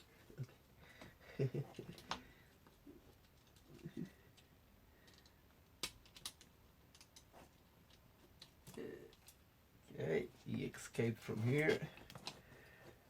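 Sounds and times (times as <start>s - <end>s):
clicks and taps of small parts: 4.3s - 7.3s.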